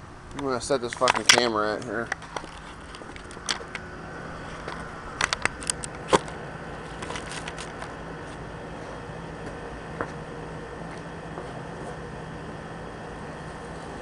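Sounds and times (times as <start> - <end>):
sharp clicks and knocks: 0.3 - 3.8.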